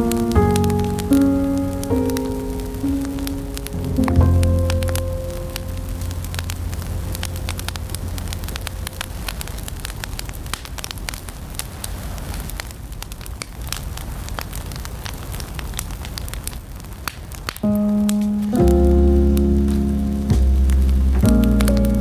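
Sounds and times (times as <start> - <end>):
jazz music: 0.0 - 9.3, 17.6 - 22.0
wood fire crackling and popping: 0.0 - 22.0.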